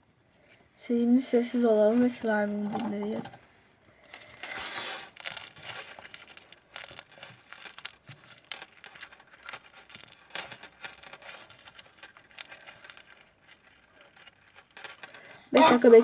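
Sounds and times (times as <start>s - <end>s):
crackling and popping clicks: 5.1s - 15.9s.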